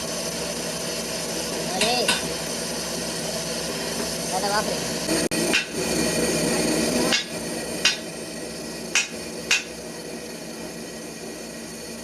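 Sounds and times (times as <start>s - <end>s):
workshop hum: 0.0s - 12.0s
hammer striking metal: 7.1s - 8.0s, 9.0s - 9.7s.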